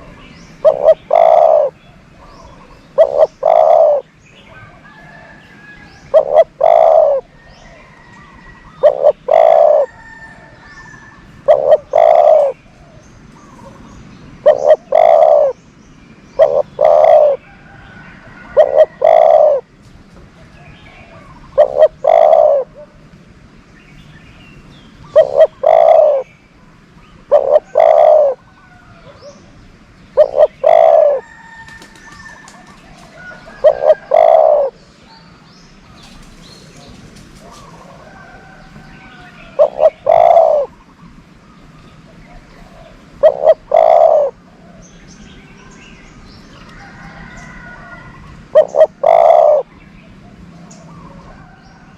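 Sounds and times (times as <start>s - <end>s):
dove cooing: 0.0s - 5.3s, 6.1s - 13.8s, 14.4s - 15.6s, 16.4s - 19.7s, 20.6s - 23.0s, 25.0s - 26.3s, 27.2s - 29.4s, 30.2s - 34.8s, 36.0s - 41.0s, 42.1s - 44.9s, 46.8s - 51.6s
small birds chirping: 10.6s - 17.4s.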